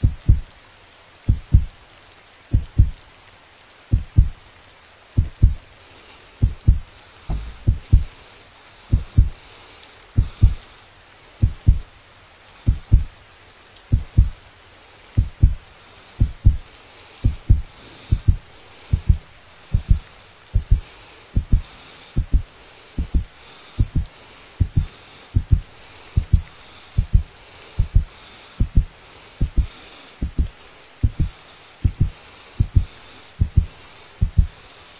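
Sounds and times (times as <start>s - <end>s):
heartbeat thumps: 0.0s - 0.6s, 1.3s - 1.8s, 2.5s - 3.0s, 3.9s - 4.4s, 5.1s - 5.6s, 6.4s - 8.2s, 8.9s - 9.4s, 10.2s - 10.6s, 11.4s - 11.9s, 12.7s - 13.2s, 13.9s - 14.4s, 15.1s - 16.6s, 17.2s - 34.6s
steady hiss: 0.0s - 34.9s.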